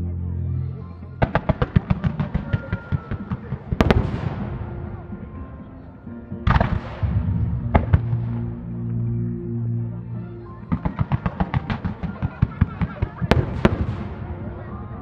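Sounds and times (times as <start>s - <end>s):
background music: 0.0s - 15.0s
firework shell reports: 1.2s - 8.2s, 10.7s - 15.0s.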